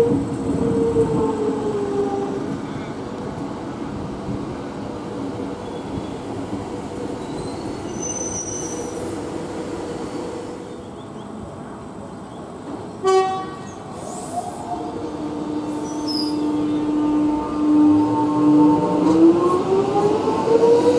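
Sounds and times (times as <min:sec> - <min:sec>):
electric train rumbling: 0:00.0 - 0:20.9
train horn toot: 0:13.0 - 0:13.8, 0:15.0 - 0:19.4.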